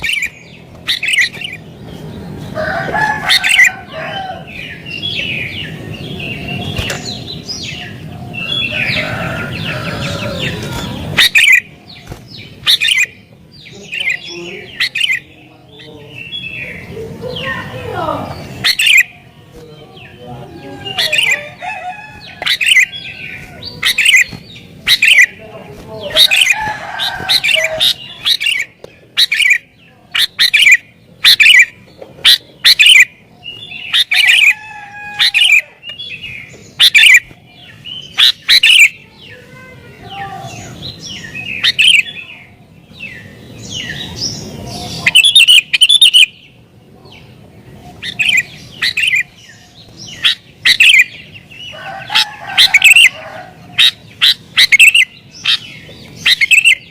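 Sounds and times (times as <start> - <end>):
bulbul singing chirpy phrases: 11.1 - 26.7, 44.4 - 46.6.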